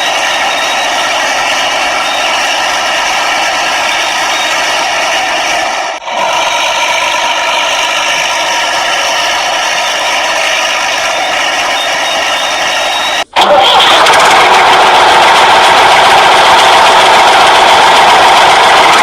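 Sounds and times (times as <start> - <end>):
motor drone with whining hum: 0.0 - 13.4.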